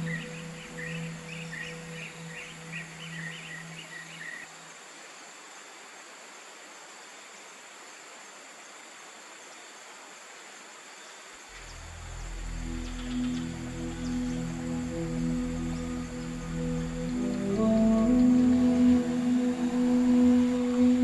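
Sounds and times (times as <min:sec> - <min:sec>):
low musical drone: 0:00.0 - 0:04.3, 0:11.6 - 0:21.0
bird chirping: 0:00.0 - 0:04.5, 0:11.0 - 0:21.0
high insect hiss: 0:00.0 - 0:21.0.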